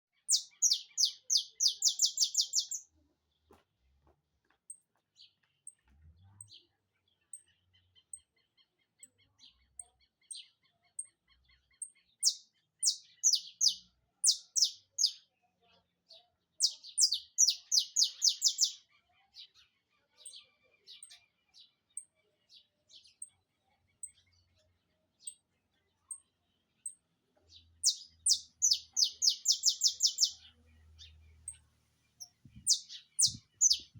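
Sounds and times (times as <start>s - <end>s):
finch singing rapid bursts: 0.3s - 2.8s, 27.9s - 30.4s, 32.5s - 33.9s
soft bird trill: 0.3s - 2.9s, 11.8s - 15.2s, 16.6s - 18.8s, 27.8s - 31.6s, 32.2s - 33.9s.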